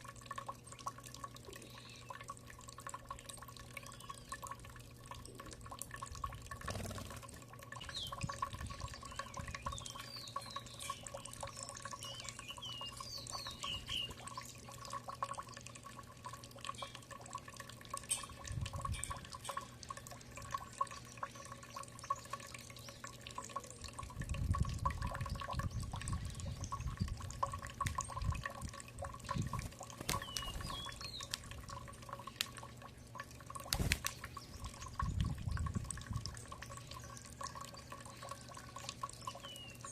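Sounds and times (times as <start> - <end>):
faint constant hum: 0.0 - 39.9
small birds chirping: 1.5 - 2.3, 3.3 - 4.5, 6.6 - 14.8, 20.9 - 23.8, 29.3 - 31.4, 36.3 - 39.9.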